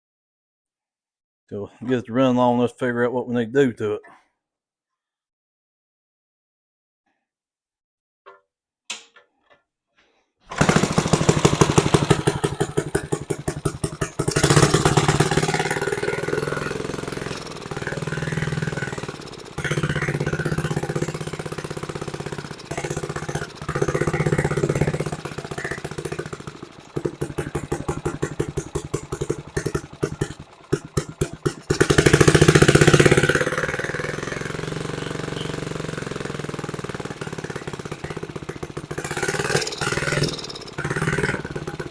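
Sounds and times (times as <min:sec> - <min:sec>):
small gasoline engine running unevenly: 0:10.5 - 0:41.9.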